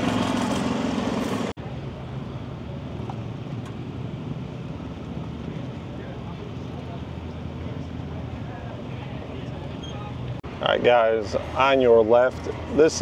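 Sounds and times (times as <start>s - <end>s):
vehicle engine running loudly: 0.0s - 10.4s
quiet vehicle rumble: 0.0s - 13.0s.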